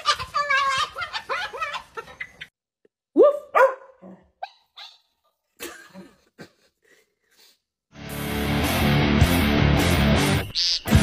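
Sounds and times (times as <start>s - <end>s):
dog barking: 3.2s - 5.0s.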